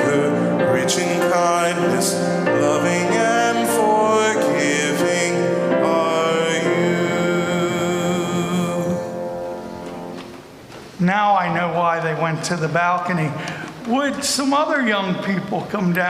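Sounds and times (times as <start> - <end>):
worship song with instruments: 0.0 - 16.0.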